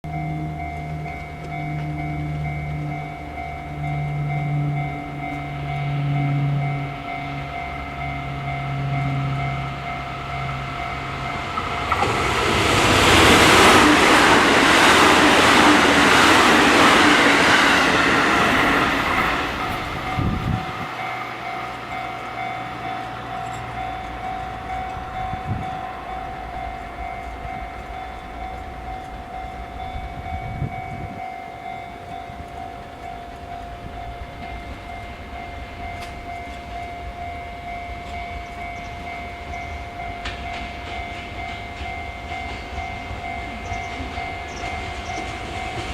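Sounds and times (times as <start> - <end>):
steady high tone: 0.1 - 45.9
locomotive rushing past: 0.2 - 33.0
rail clatter: 10.3 - 31.4, 40.0 - 45.9.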